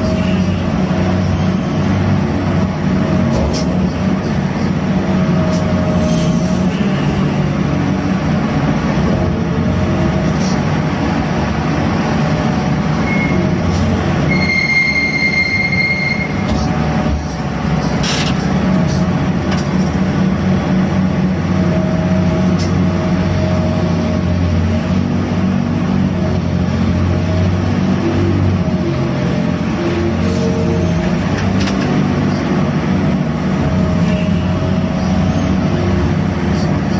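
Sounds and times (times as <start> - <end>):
crane engine and winch machinery: 0.0 - 36.9
high steady squeal: 14.3 - 16.7.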